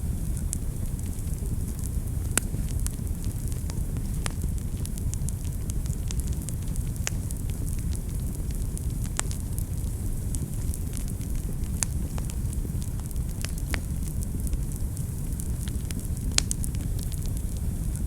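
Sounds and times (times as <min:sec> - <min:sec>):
wood fire crackling and popping: 0:00.0 - 0:18.0.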